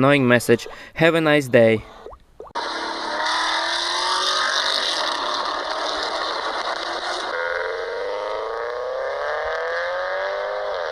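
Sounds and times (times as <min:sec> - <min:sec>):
motorcycle engine accelerating: 0:02.6 - 0:10.9.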